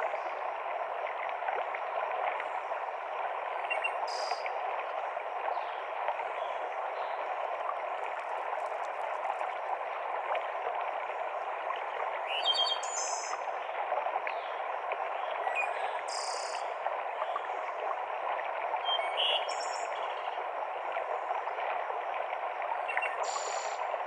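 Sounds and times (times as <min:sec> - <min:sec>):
stream rushing over rocks: 0:00.0 - 0:12.8.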